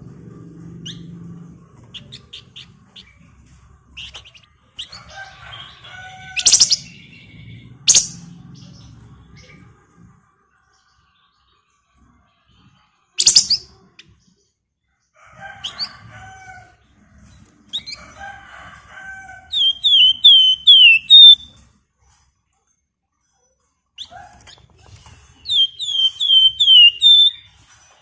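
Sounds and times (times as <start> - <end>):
songbird singing: 6.4 - 8.3, 13.2 - 13.7, 19.6 - 21.5, 25.5 - 27.4.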